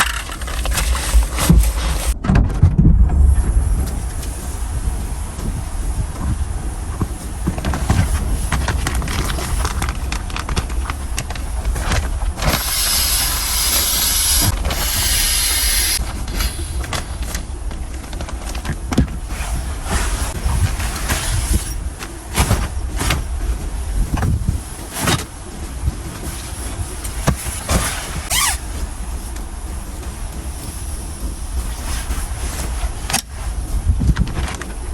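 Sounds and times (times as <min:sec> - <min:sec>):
knocks and scrapes: 0:00.0 - 0:04.5
strong wind buffeting: 0:00.0 - 0:34.9
loud hiss: 0:12.4 - 0:16.9.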